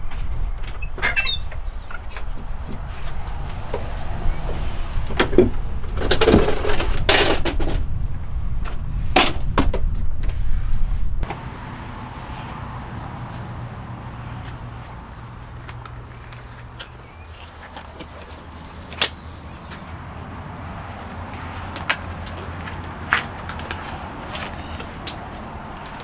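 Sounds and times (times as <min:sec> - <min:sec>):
low rumble: 0:00.0 - 0:16.7
metal hand tools clattering: 0:05.2 - 0:07.8.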